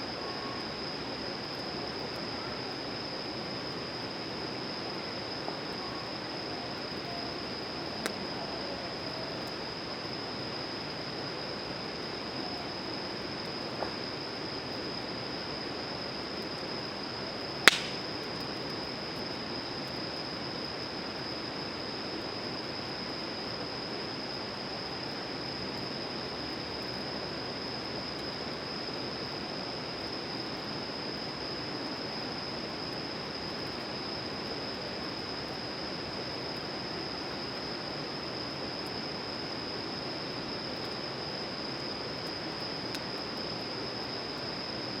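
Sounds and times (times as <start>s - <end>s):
wood campfire burning: 6.6s - 9.8s, 16.2s - 21.2s, 38.3s - 44.1s
sharp loud pop: 17.7s - 18.1s.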